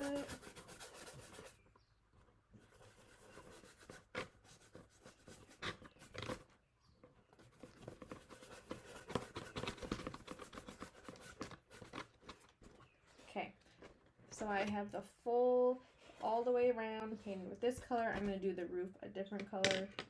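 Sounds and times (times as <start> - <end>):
paintbrush scratching on cardboard: 0.0 - 1.6, 2.6 - 6.5, 7.3 - 13.3.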